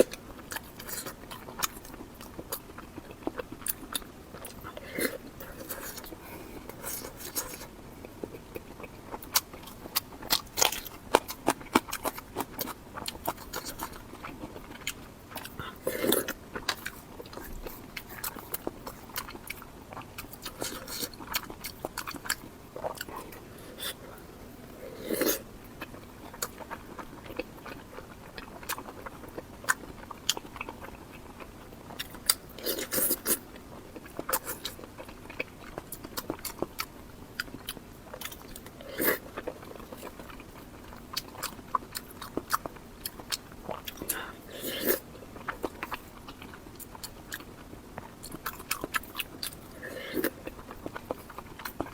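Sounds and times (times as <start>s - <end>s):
chewing and soft crunches: 0.0s - 51.9s
biting or slurping: 24.8s - 25.5s.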